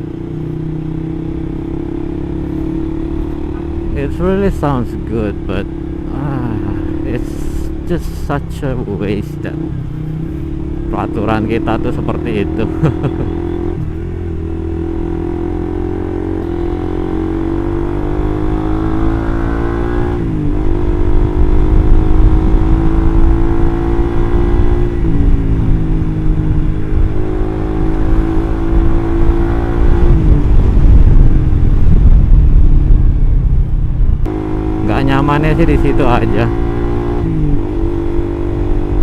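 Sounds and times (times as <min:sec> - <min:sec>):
motorcycle engine accelerating: 0:00.0 - 0:39.0.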